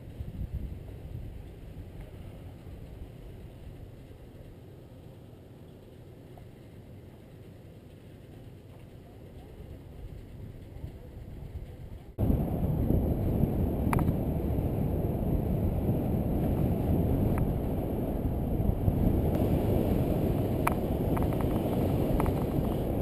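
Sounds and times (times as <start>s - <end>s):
wind rushing over microphone: 0.0s - 4.5s, 9.4s - 23.0s.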